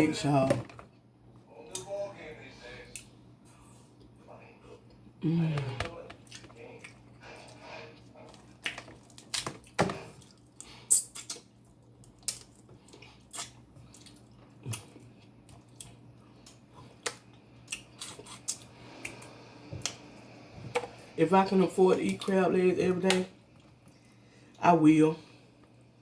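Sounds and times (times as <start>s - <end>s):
lip smacking and chewing: 6.2s - 20.0s.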